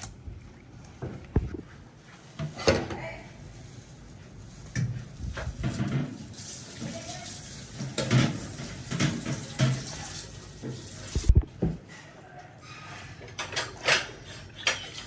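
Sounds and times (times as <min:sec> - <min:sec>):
tap water running into sink: 0:05.6 - 0:11.4.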